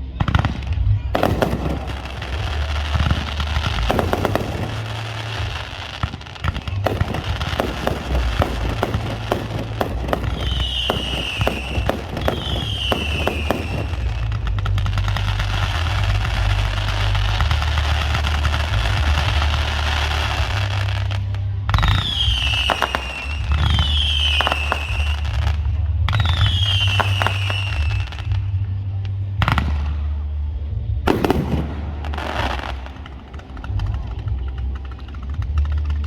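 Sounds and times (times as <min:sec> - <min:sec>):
fireworks banging and crackling: 0:00.0 - 0:36.0
firework whistles falling in pitch: 0:10.2 - 0:14.3, 0:21.8 - 0:25.4, 0:26.2 - 0:28.4.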